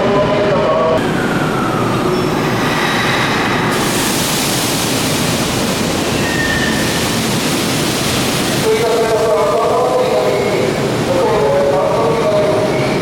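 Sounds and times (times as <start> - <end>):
train wheels rumbling on rail: 1.0 - 13.0
hiss: 2.7 - 8.7.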